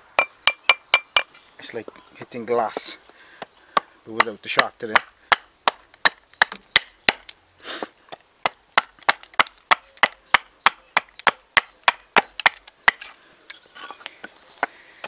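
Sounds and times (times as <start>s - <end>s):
axe chopping wood: 3.7s - 7.4s, 8.1s - 13.1s.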